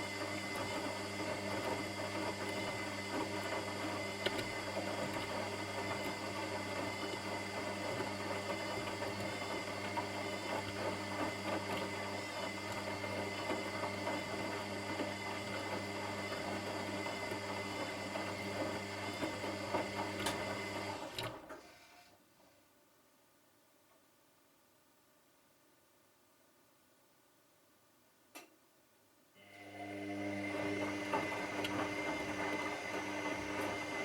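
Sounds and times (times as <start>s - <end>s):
washing machine running: 0.0s - 21.5s, 29.4s - 34.0s.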